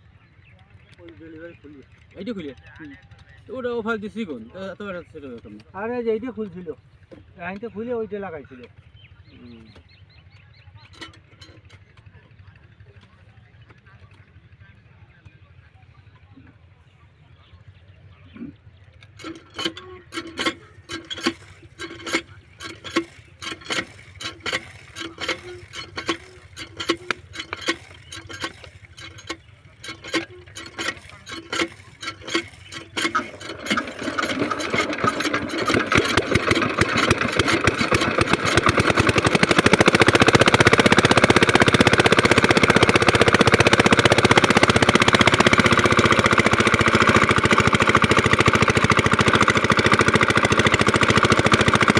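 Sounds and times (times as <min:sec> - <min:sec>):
diesel engine cranking and starting: 0:08.2 - 0:14.4, 0:18.2 - 0:51.9.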